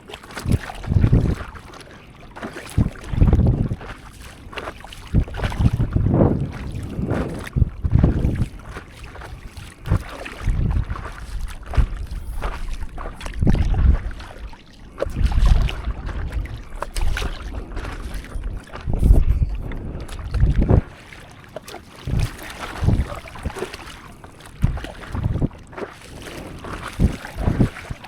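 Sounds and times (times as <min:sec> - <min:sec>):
water splashing around a paddleboard: 0:00.0 - 0:28.0
wind buffeting the microphone: 0:00.3 - 0:01.6, 0:02.4 - 0:21.1, 0:22.0 - 0:28.0.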